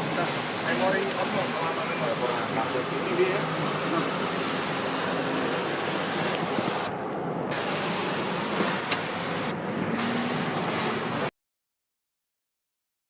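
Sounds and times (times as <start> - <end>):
water spray hissing: 0.0 - 11.3
wind rushing: 3.4 - 11.1.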